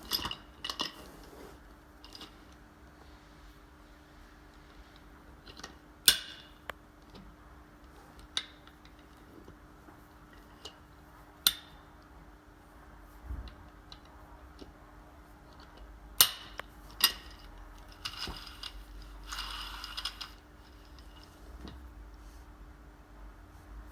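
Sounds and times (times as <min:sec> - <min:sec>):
faint steady hum: 0:00.0 - 0:23.9
small metal parts clinking: 0:17.0 - 0:21.4
metal rattling scrape: 0:17.1 - 0:21.6.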